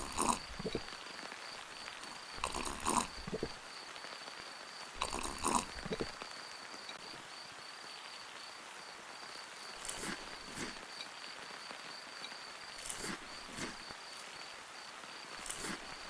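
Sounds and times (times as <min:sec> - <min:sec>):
chewing and mouth noise: 0:00.0 - 0:01.0, 0:01.9 - 0:03.7, 0:05.0 - 0:06.2, 0:09.8 - 0:10.9, 0:12.8 - 0:14.0, 0:15.3 - 0:16.0.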